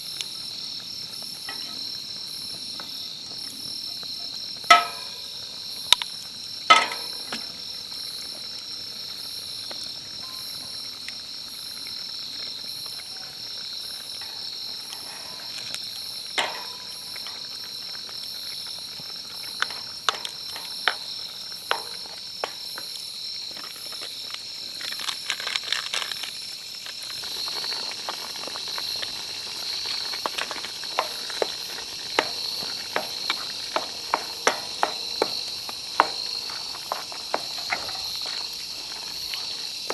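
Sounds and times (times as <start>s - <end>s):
high-pitched insect chorus: 0.0s - 39.9s
sharp clicks and knocks: 4.7s - 5.3s, 6.7s - 7.5s, 16.4s - 17.5s, 19.5s - 22.9s, 27.7s - 39.9s.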